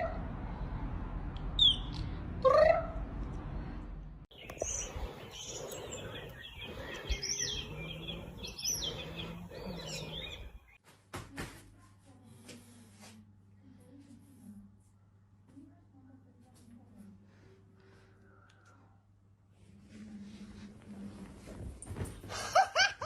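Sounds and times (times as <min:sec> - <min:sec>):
bird chirping: 0:01.6 - 0:02.1, 0:04.3 - 0:10.8.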